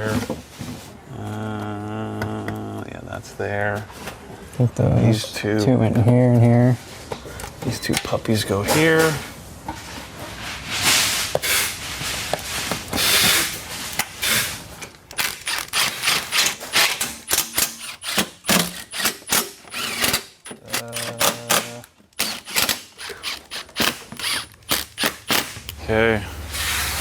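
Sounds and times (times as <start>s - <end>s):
plastic trim rustling and scraping: 7.7s - 25.7s
ratchet wrench clicking: 15.1s - 25.8s.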